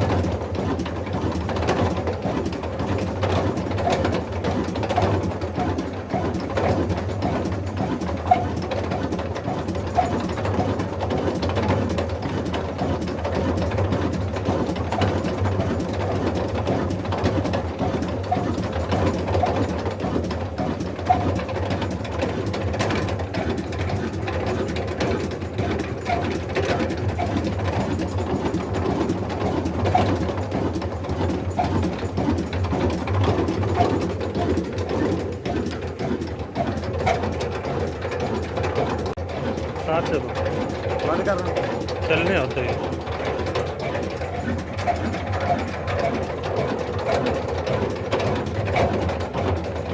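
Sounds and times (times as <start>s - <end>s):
diesel engine running: 37.3s - 45.6s.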